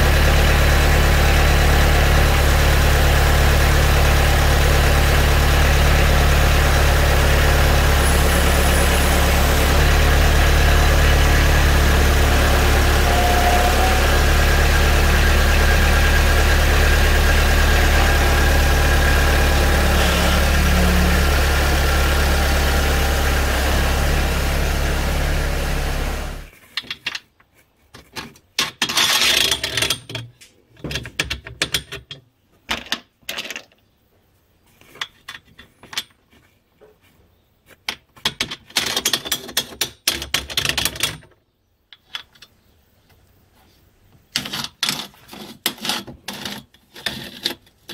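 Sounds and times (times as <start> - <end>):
diesel tractor engine running: 0.0 - 26.5.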